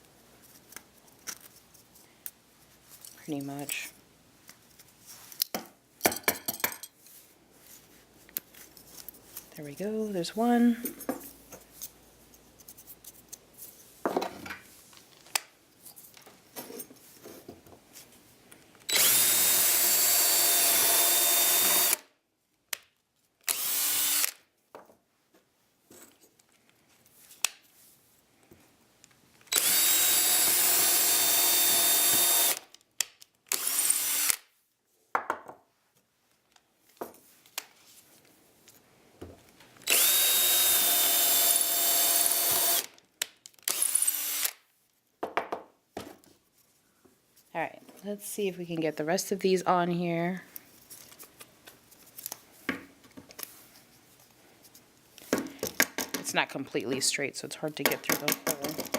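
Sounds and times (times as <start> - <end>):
handling and knocking of wood: 14.0 - 14.7, 45.2 - 46.4
electric drill boring wood: 18.9 - 22.0, 23.5 - 24.4, 29.5 - 32.6, 33.5 - 34.4, 39.8 - 42.9, 43.7 - 44.6.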